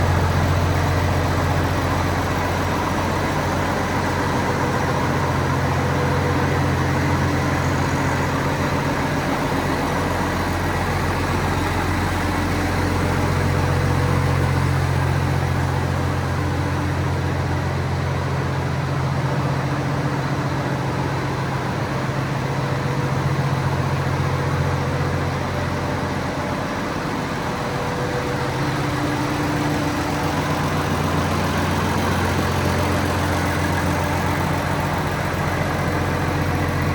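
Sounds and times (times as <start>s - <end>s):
tractor diesel engine idling: 0.0s - 36.9s.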